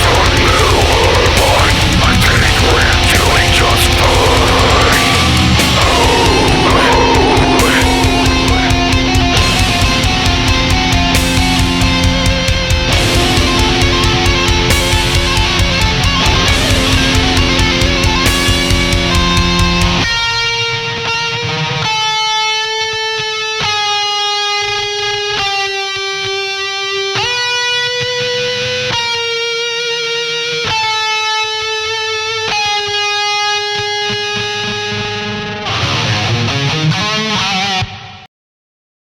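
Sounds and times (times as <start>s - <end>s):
guitar playing held chords: 0.0s - 38.2s
instrumental band music: 2.9s - 20.1s.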